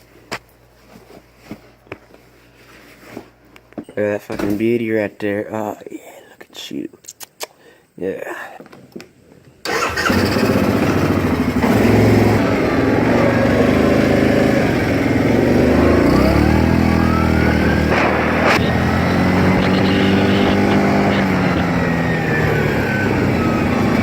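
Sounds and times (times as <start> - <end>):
quad bike engine revving: 9.7 - 24.0.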